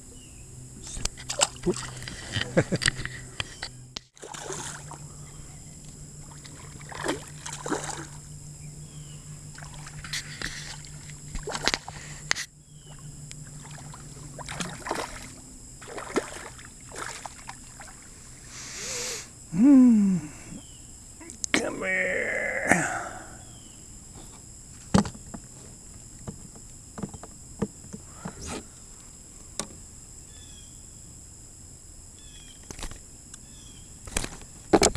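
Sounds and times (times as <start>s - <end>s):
low hum: 0.0s - 25.4s
light water sounds: 0.8s - 2.6s, 4.2s - 5.4s, 6.2s - 8.2s, 9.5s - 18.5s
voice-like sound bending up and down: 21.6s - 23.4s
kayak knocks: 24.9s - 25.5s, 26.2s - 28.3s.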